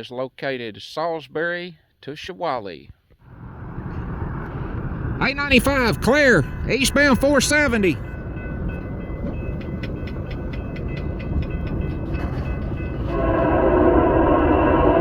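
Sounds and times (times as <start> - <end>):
freight train rumbling: 3.3 - 15.0
locomotive horn: 13.0 - 15.0.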